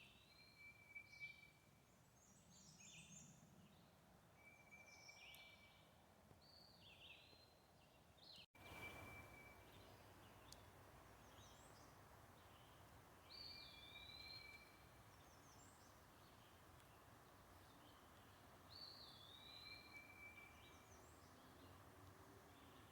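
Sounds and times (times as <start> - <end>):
songbirds chirping: 0.0 - 22.9
low steady hiss: 7.8 - 22.9.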